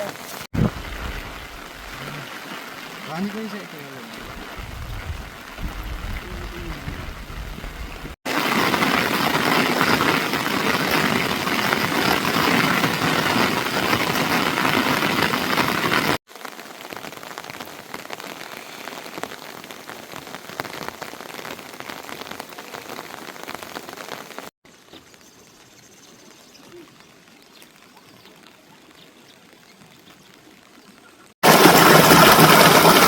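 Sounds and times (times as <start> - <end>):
raindrops ticking: 0.0 - 24.2
heavy rain hissing: 0.0 - 24.5, 31.4 - 33.0.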